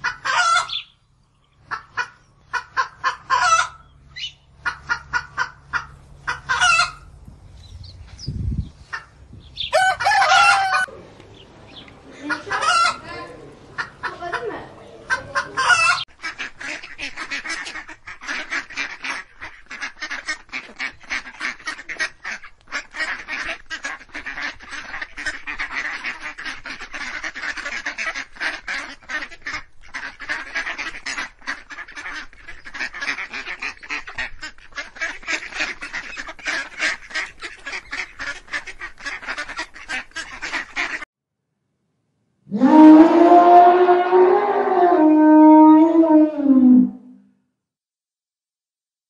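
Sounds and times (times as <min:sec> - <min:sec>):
flock of birds calling: 0:00.0 - 0:01.0, 0:08.8 - 0:41.0.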